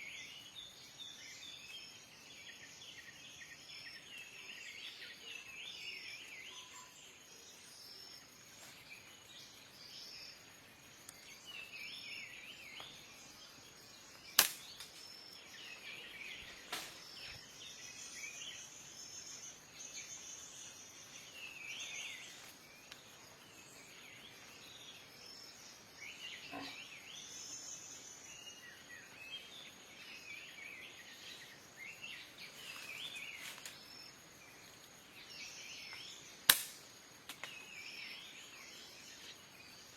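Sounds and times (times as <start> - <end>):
small birds chirping: 0.0 - 39.9
faint sharp snaps: 14.3 - 15.0, 36.5 - 37.6
loud sharp crack: 14.4 - 14.9, 36.5 - 36.8.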